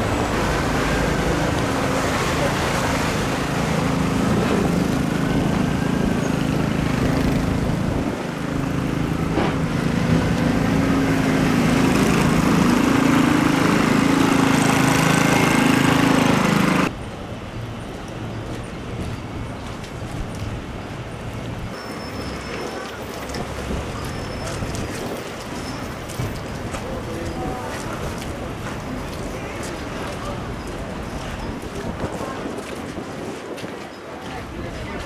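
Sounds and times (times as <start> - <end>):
faint siren wailing: 0.0 - 6.9
vehicle engine running loud: 0.0 - 17.0
street and wind noise: 0.0 - 35.0.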